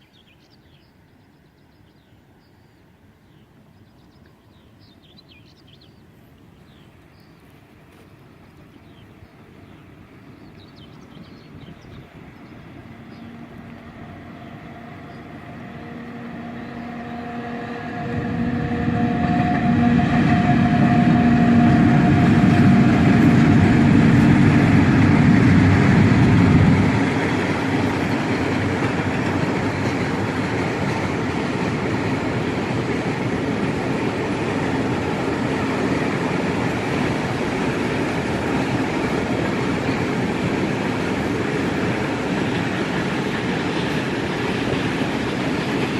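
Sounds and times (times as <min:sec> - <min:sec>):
locomotive hum: 0:06.9 - 0:45.9
freight wagons rumbling on rails: 0:08.8 - 0:45.9.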